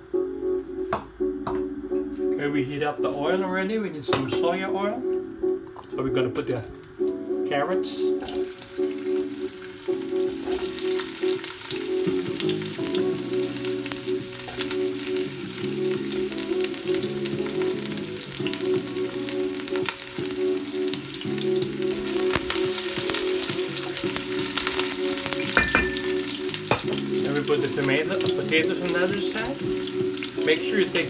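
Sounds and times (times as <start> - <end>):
carrots sizzling in oil: 6.6 - 31.0.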